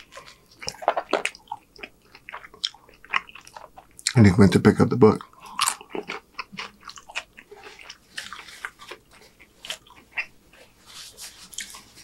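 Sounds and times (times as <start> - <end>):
close-miked chewing: 0.0 - 4.2, 5.1 - 12.0.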